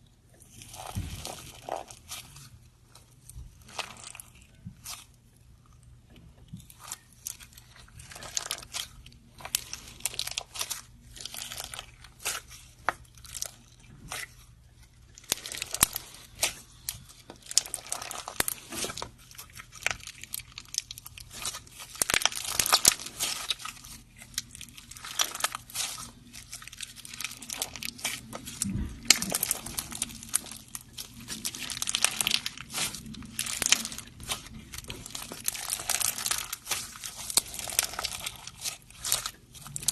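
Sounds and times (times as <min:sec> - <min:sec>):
slime crackling and clicking: 0:15.1 - 0:39.9.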